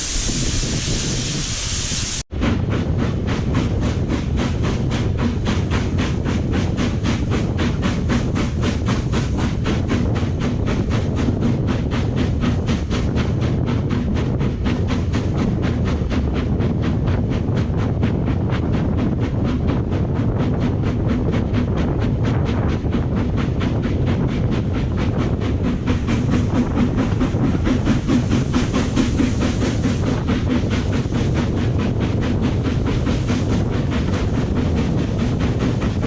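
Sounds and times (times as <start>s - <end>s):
steady rushing hiss: 0.0s - 2.3s, 25.6s - 36.0s
train running rhythmically: 0.0s - 36.0s.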